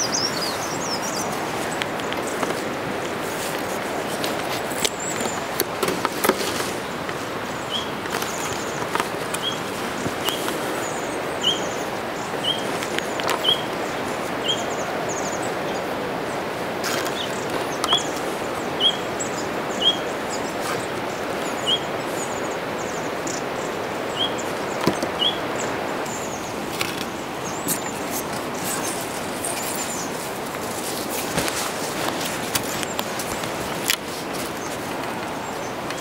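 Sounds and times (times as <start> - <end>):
steady outdoor hiss: 0.0 - 36.0
small bird chirping: 12.4 - 15.8.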